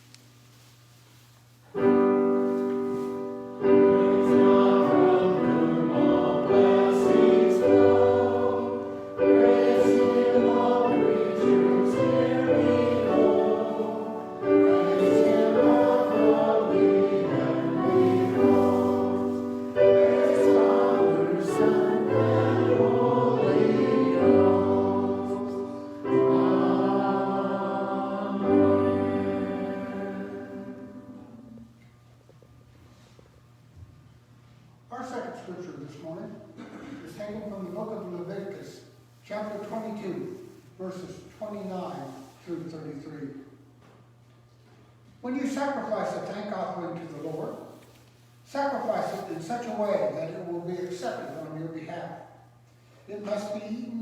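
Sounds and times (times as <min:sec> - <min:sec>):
piano accompaniment: 0:01.7 - 0:31.7
choir singing: 0:03.2 - 0:31.8.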